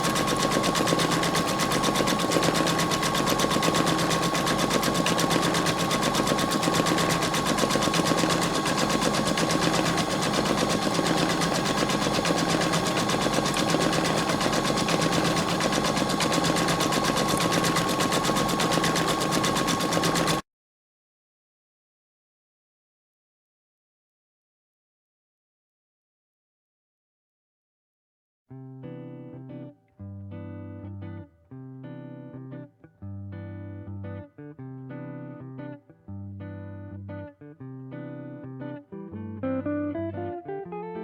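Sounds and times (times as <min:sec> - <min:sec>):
embroidery machine stitching: 0:00.0 - 0:20.4.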